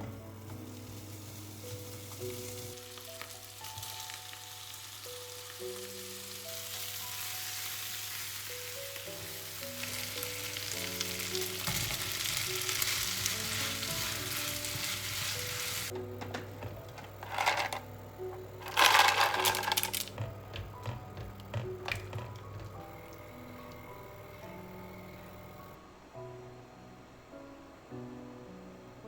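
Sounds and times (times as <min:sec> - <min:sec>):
food sizzling in a pan: 0:00.0 - 0:16.0
soft piano music: 0:00.0 - 0:29.0.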